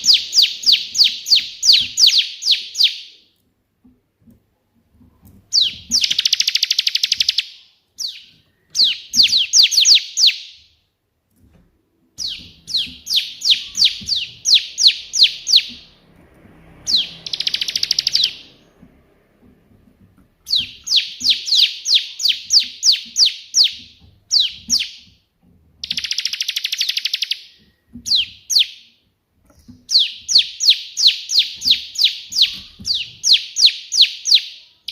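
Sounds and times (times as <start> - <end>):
bird chirping rapidly: 0.0 - 3.2, 5.5 - 10.7, 12.2 - 16.0, 16.6 - 19.5, 20.4 - 25.1, 25.8 - 29.0, 29.6 - 34.9
bird buzzy trills: 16.8 - 18.8.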